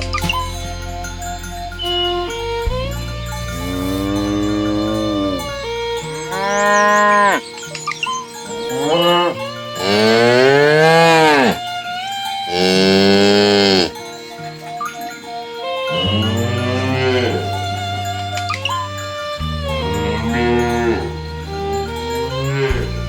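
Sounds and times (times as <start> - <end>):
cows mooing: 3.4 - 7.6, 8.5 - 11.7, 12.5 - 14.0, 15.9 - 23.0.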